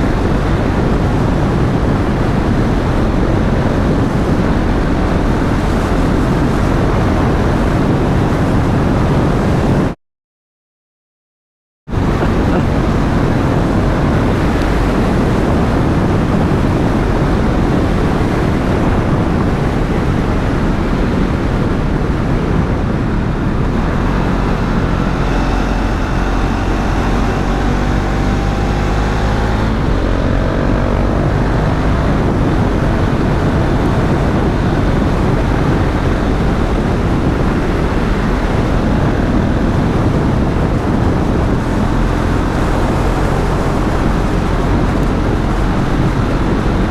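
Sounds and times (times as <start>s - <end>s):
wind rush on microphone: 0.0s - 10.0s, 11.9s - 46.9s
motorcycle engine running: 11.9s - 46.9s.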